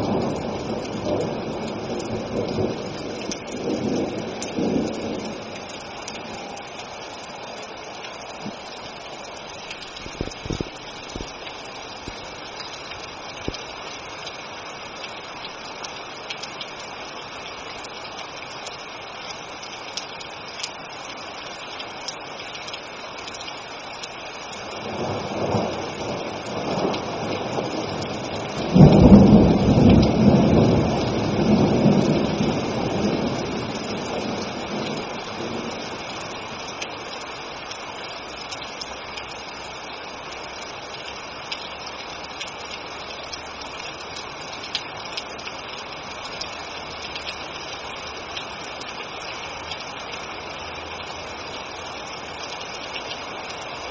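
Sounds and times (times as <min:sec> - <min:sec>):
thunder rumbling: 0:00.0 - 0:06.5, 0:24.8 - 0:36.5
steady rain: 0:00.0 - 0:53.9.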